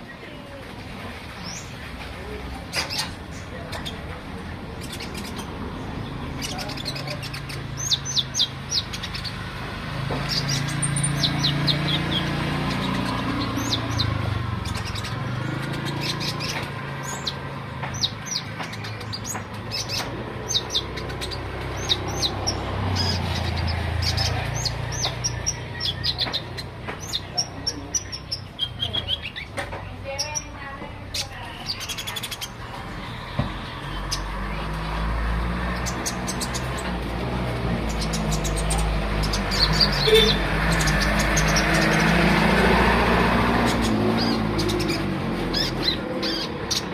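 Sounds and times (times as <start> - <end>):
sunbird chirping: 37.7 - 46.9.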